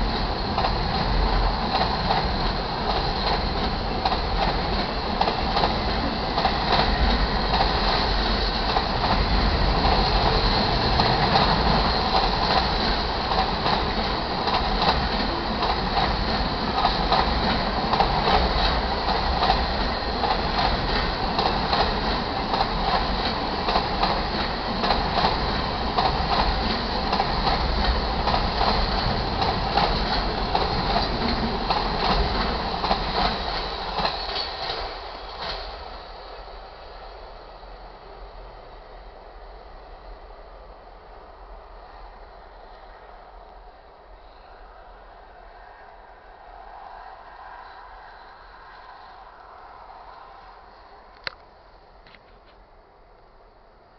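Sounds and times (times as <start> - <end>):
wheels clacking over rail joints: 0.0 - 35.8
freight train wheels rumbling: 0.0 - 53.2.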